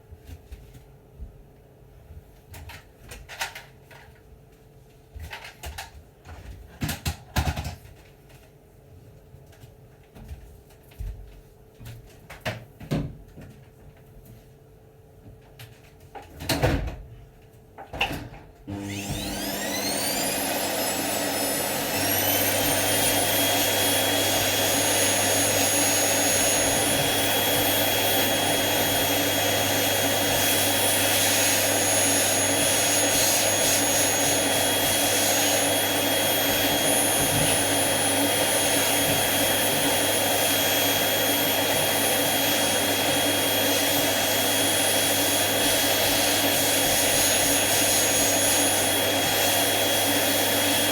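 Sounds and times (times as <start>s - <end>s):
vacuum cleaner running: 18.1s - 50.9s.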